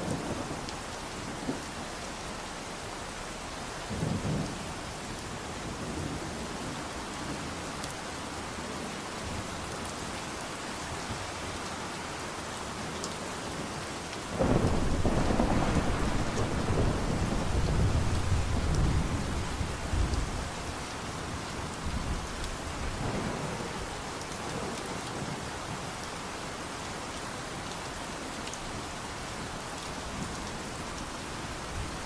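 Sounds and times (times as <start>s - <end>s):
steady rain falling: 0.0s - 32.0s
thunder rumbling: 14.3s - 20.7s.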